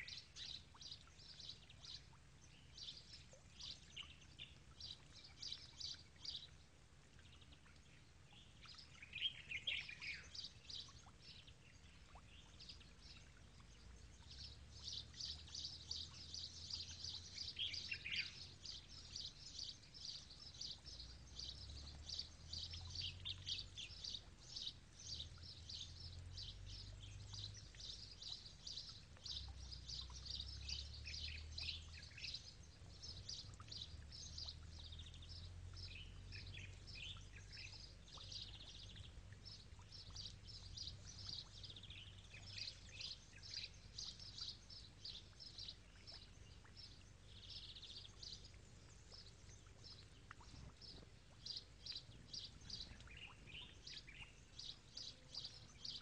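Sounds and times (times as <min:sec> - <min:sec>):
faint low rumble: 0:00.0 - 0:56.0
birds chirping: 0:07.2 - 0:56.0.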